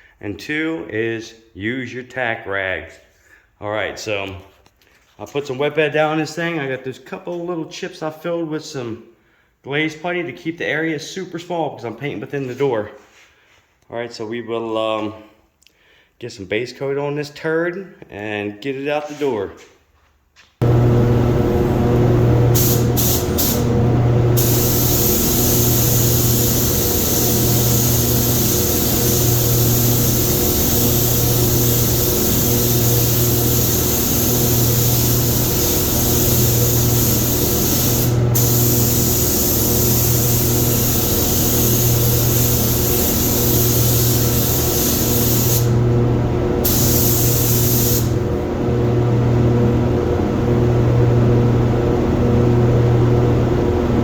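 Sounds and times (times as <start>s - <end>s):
low hum: 20.6s - 53.0s
paint spray gun hissing: 22.5s - 45.9s, 46.6s - 48.3s.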